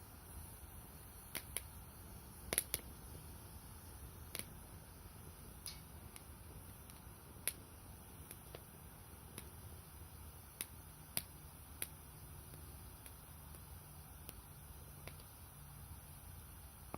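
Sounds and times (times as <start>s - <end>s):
low noise from the fire: 0.0s - 16.9s
firewood crackling and popping: 0.4s - 15.7s.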